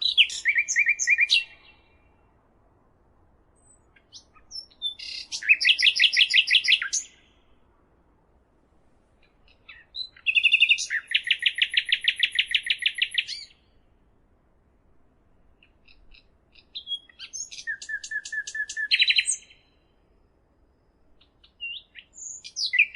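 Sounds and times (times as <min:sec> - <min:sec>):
songbird trilling: 0:00.0 - 0:02.0, 0:03.6 - 0:07.4, 0:09.4 - 0:13.7, 0:15.6 - 0:19.7, 0:21.2 - 0:22.9.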